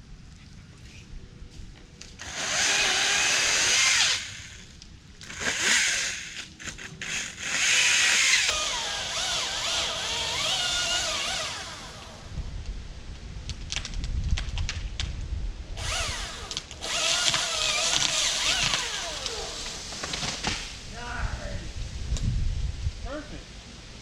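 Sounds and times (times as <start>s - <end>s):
chainsaw cutting wood: 2.2s - 12.3s, 15.8s - 20.8s.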